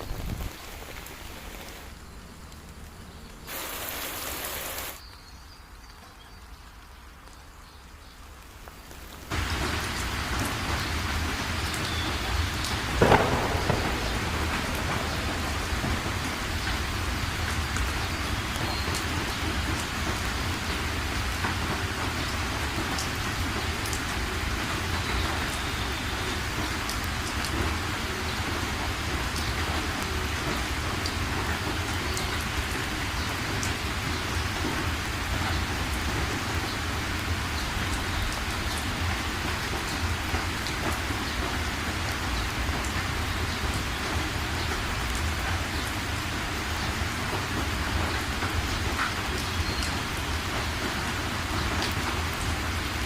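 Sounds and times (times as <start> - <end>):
heavy rain pouring: 0.0 - 53.0
thunder crack: 10.4 - 18.7.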